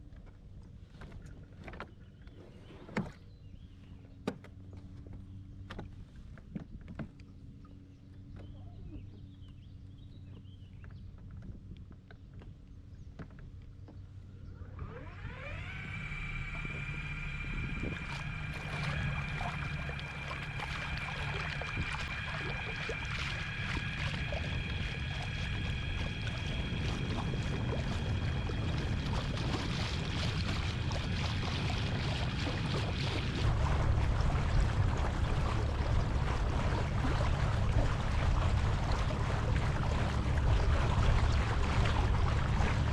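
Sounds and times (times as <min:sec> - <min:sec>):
low hum: 0:00.0 - 0:42.9
water noise: 0:00.0 - 0:42.9
small motor whine: 0:13.9 - 0:42.9
wind noise: 0:15.6 - 0:42.9.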